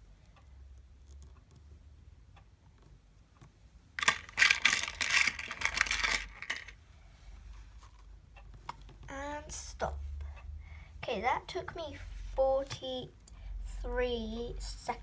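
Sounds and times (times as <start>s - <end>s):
faint clicks of small pieces: 2.7s - 6.8s
clattering and rustling: 4.0s - 6.8s.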